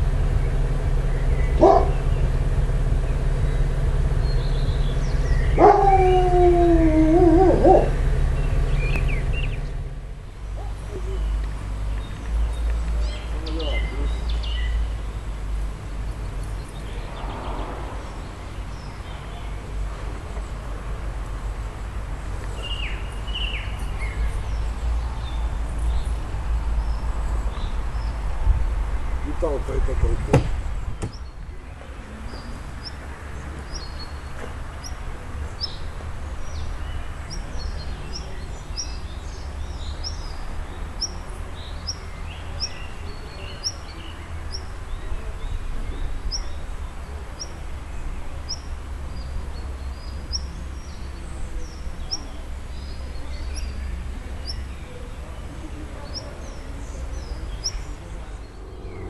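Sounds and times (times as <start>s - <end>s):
steady low rumble: 0.0s - 42.1s, 53.1s - 59.0s
small bird chirping: 36.5s - 45.2s, 48.4s - 54.8s, 56.0s - 59.0s.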